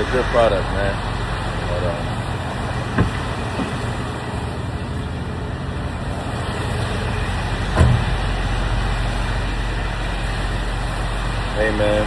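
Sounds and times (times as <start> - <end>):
low hum: 0.0 - 11.6
rain: 0.0 - 12.0
vehicle noise: 0.0 - 12.0
dull thump: 2.9 - 3.9, 7.6 - 8.5.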